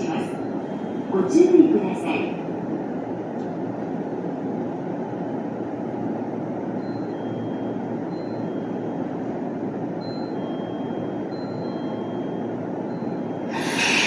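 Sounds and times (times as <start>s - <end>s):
electric train rumbling: 0.0s - 6.8s, 12.6s - 14.0s.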